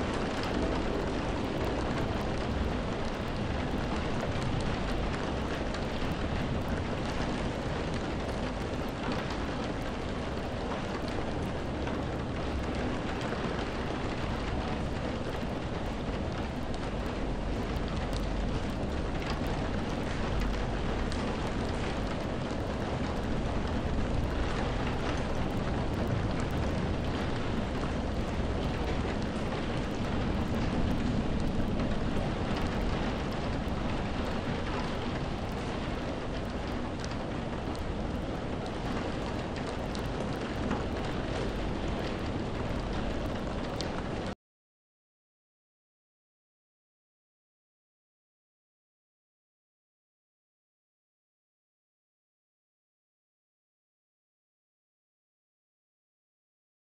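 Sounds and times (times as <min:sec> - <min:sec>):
steady rain falling: 0:00.0 - 0:44.4.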